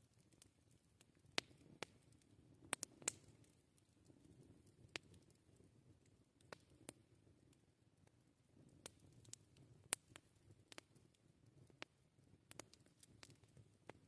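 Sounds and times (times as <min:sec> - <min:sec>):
faint low fire hiss: 0:00.0 - 0:14.0
burning wood popping and snapping: 0:00.1 - 0:05.4, 0:08.7 - 0:14.0.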